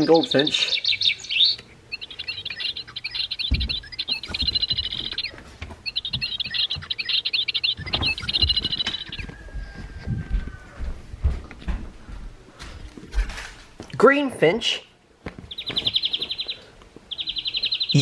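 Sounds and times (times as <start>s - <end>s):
recorded bird twittering: 0.0s - 10.7s, 15.5s - 18.0s.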